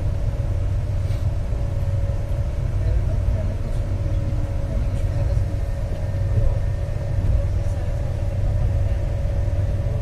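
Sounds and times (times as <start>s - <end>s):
train rumble from inside carriage: 0.0s - 10.0s.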